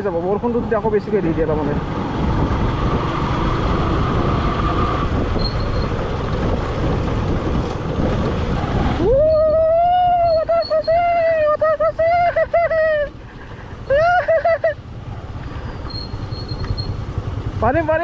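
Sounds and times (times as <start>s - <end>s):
motorbike road noise: 0.0s - 18.0s
rushing wind: 0.0s - 18.0s
motorbike engine revving: 1.6s - 9.2s.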